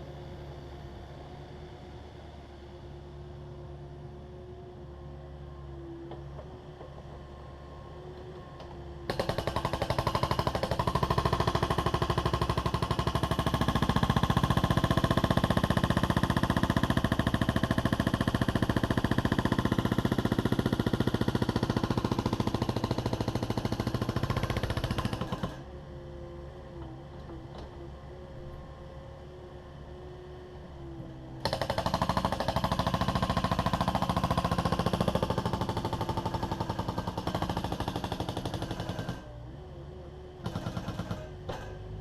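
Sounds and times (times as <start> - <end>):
hydraulic breaker hammering concrete: 9.1 - 25.6, 31.4 - 39.3, 40.4 - 42.0.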